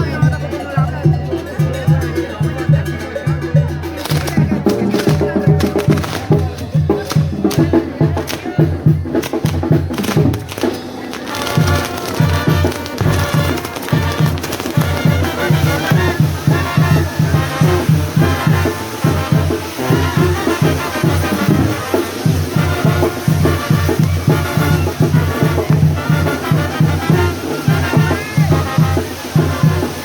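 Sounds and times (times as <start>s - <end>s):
brass band music: 3.7s - 30.0s.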